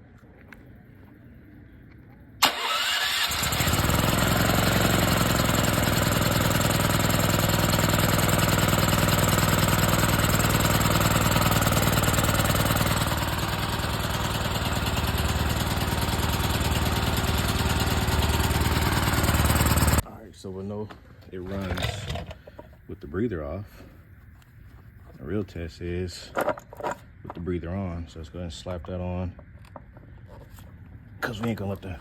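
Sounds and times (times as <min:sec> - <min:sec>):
generator engine starting and running: 0:02.4 - 0:20.1.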